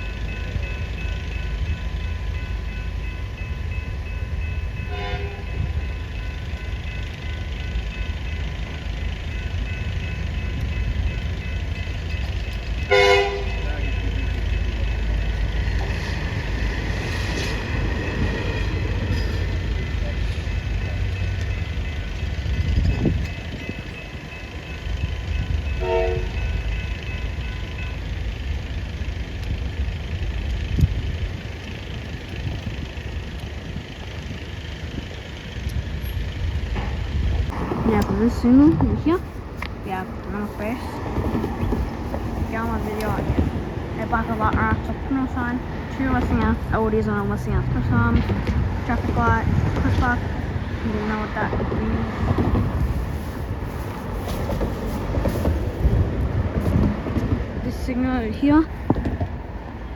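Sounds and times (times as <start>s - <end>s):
crossing bells ringing: 0.0s - 59.9s
train rumbling past: 0.0s - 59.9s
train horn toot: 4.8s - 5.8s, 12.9s - 13.7s, 25.7s - 26.6s.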